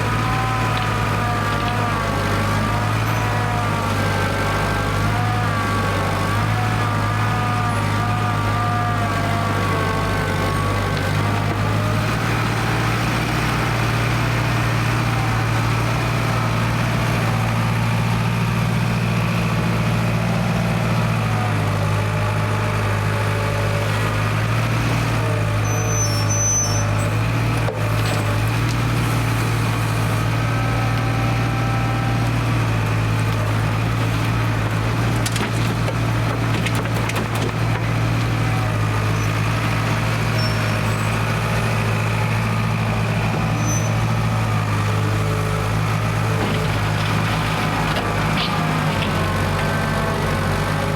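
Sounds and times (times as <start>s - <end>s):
backhoe diesel engine running: 0.0s - 50.9s.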